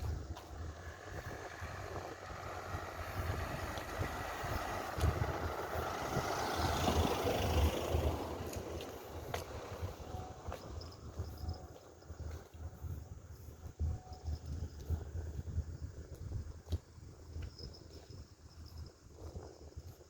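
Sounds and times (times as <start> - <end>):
motor vehicle passing by: 0.5 - 10.5.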